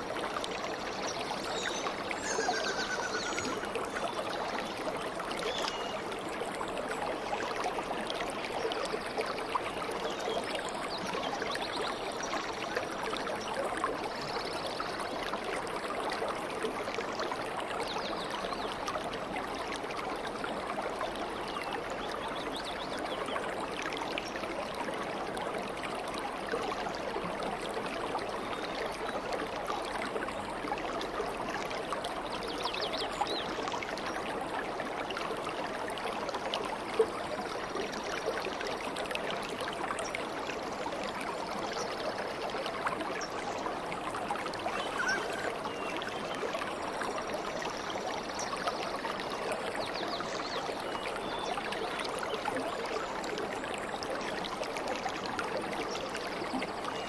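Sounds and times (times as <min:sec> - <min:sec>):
stream flowing over stones: 0:00.0 - 0:57.0
faint bird chirps: 0:44.6 - 0:46.2.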